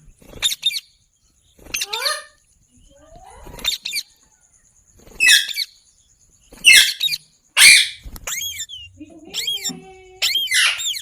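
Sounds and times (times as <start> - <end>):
parrot chirps: 1.7 - 2.4, 3.2 - 4.2, 5.2 - 5.8, 6.6 - 11.0
parrot screeching: 6.6 - 11.0.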